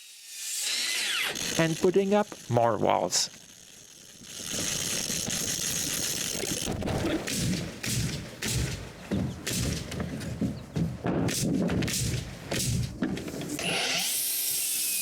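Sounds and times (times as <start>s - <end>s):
knocks and thuds of framing: 6.7s - 13.6s.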